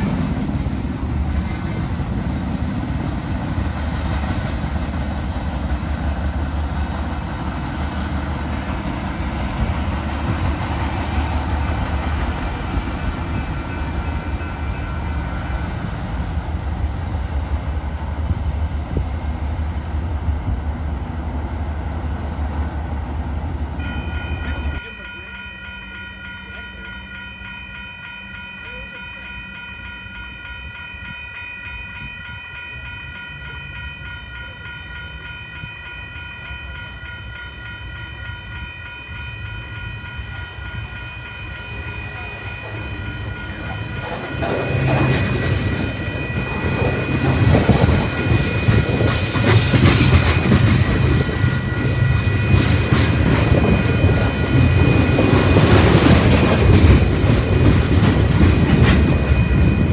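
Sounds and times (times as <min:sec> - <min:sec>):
train wheels rumbling on rails: 0:00.0 - 0:59.9
steady ringing tone: 0:23.8 - 0:49.2, 0:49.8 - 0:59.9
high wheel squeals: 0:41.8 - 0:56.7, 0:58.4 - 0:59.9.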